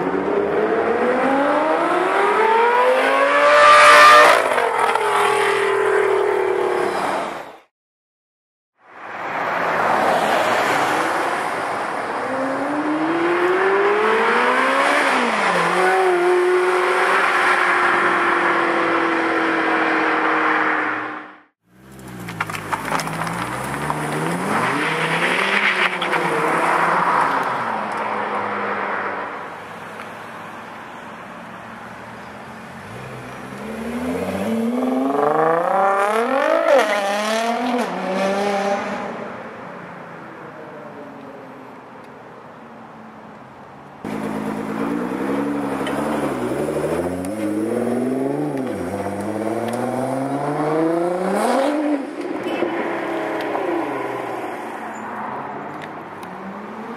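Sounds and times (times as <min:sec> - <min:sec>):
car engines accelerating hard: 0:32.4 - 0:39.2, 0:44.0 - 0:54.8.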